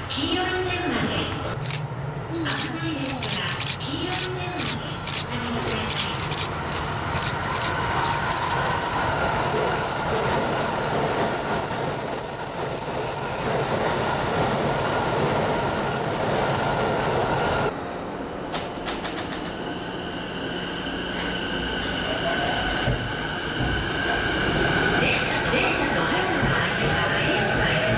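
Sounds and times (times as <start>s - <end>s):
train rumbling on rails: 0.0s - 27.9s
train wheel squeal: 6.4s - 16.6s.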